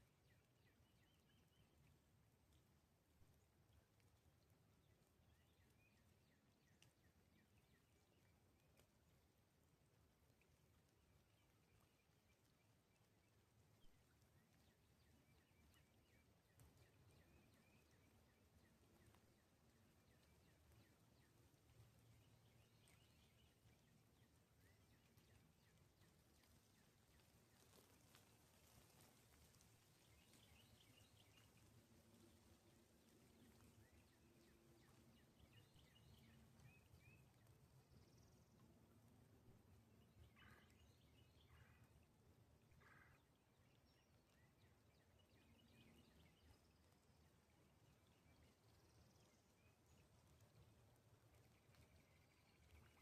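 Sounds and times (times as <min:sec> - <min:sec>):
soft rain patter: 0:00.0 - 0:53.0
drip ticks: 0:01.6 - 0:33.9.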